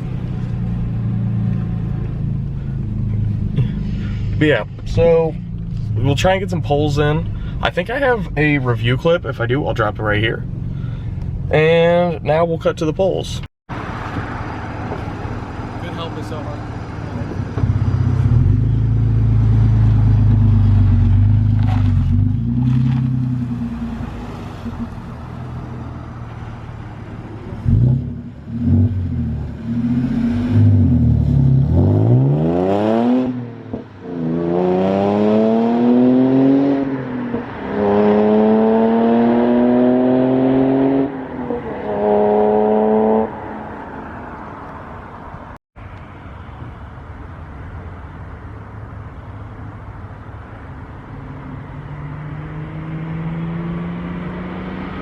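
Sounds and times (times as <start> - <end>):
car engine accelerating: 13.7 - 44.6, 51.7 - 55.0.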